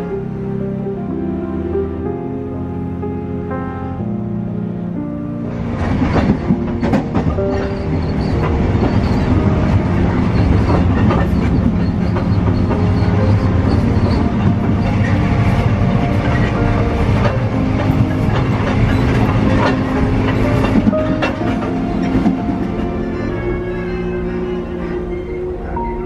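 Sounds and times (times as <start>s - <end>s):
train rumbling and rattling: 5.4s - 26.0s
wheels clacking over rail joints: 5.7s - 25.8s.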